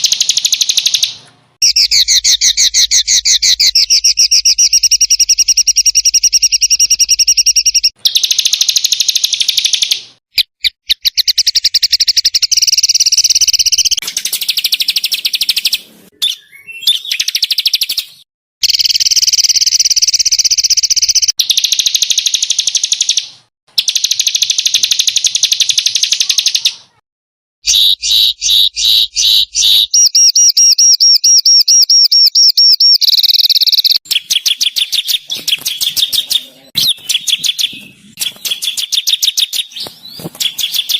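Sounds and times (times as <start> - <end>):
songbirds trilling harshly: 0.0 - 18.2, 32.6 - 40.9.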